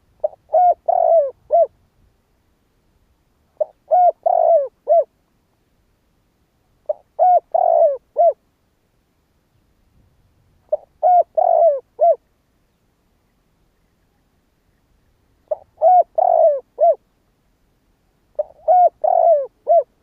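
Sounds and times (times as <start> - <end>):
dove cooing: 0.2 - 1.8, 3.6 - 5.1, 6.8 - 8.4, 10.7 - 12.2, 15.4 - 17.1, 18.3 - 20.0.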